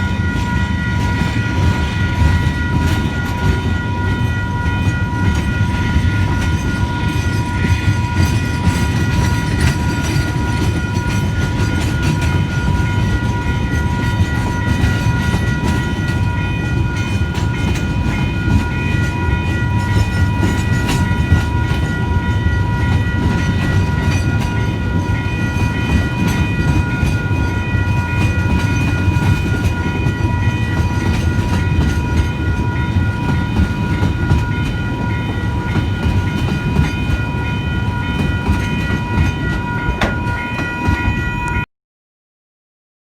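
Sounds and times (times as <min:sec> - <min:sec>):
train rumbling past: 0:00.0 - 0:41.6
high ringing tone: 0:00.0 - 0:41.7.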